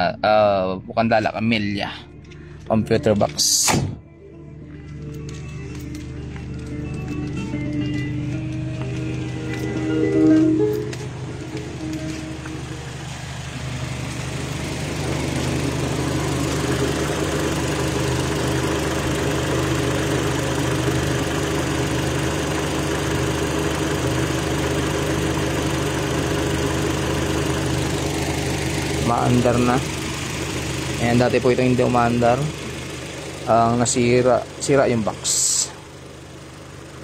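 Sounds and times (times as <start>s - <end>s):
car engine idling: 4.5s - 37.0s.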